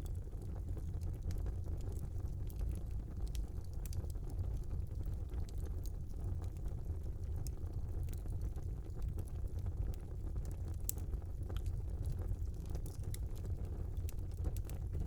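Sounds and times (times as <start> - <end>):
fire crackling and popping: 0.0 - 15.0
fire low rumble: 0.0 - 15.0.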